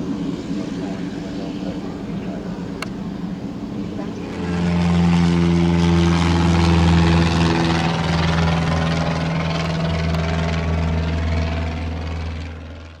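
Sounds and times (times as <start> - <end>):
turboprop engine droning: 0.0 - 13.0.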